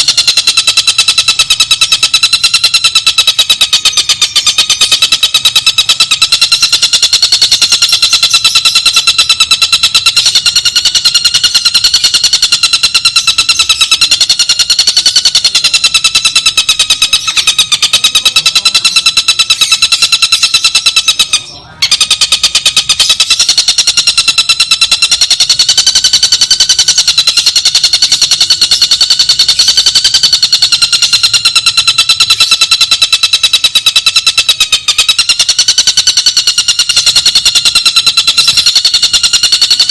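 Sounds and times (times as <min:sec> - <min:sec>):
rapid buzzy bird trill: 0:00.0 - 0:39.9.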